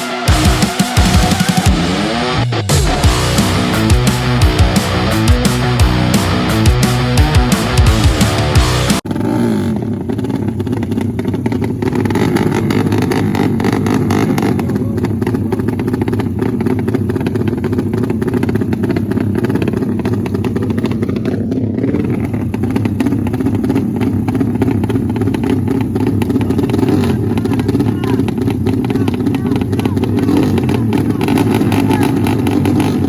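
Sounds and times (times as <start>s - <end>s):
motorcycle engines crackling: 0.0s - 33.0s.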